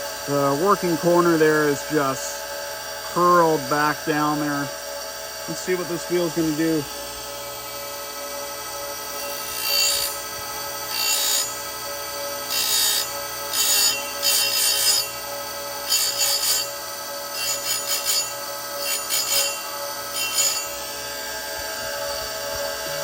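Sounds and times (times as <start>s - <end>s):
chain grinder running: 12.4s - 21.0s.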